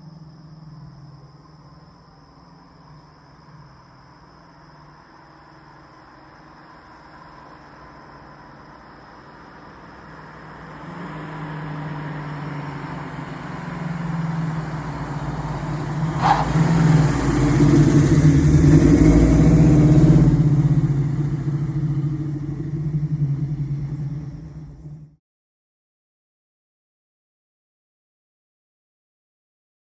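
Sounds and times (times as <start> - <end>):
car engine running: 12.7 - 25.2.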